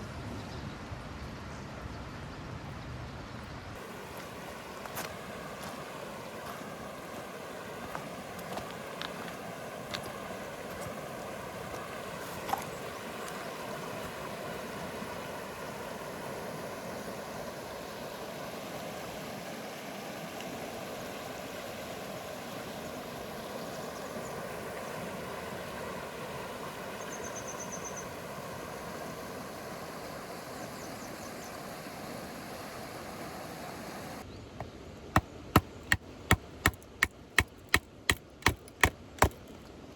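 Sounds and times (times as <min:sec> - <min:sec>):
river water rushing: 0:03.8 - 0:34.2, 0:35.2 - 0:39.6
sharp chopping knocks: 0:35.2 - 0:39.4
sharp ticks: 0:36.6 - 0:39.4.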